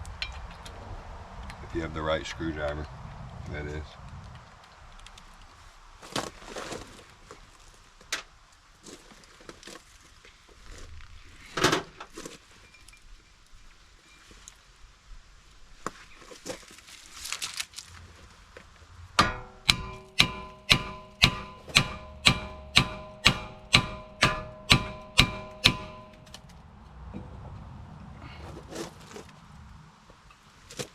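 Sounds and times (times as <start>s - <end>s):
hammer blows on metal rotor: 19.2s - 26.4s
tools clinking and knocking: 19.2s - 26.4s.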